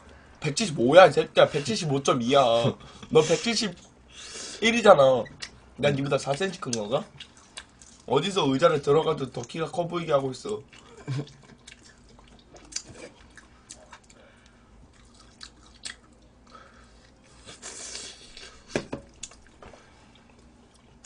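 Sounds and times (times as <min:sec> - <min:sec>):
people chewing fried chicken: 0:06.3 - 0:08.1, 0:10.4 - 0:21.0.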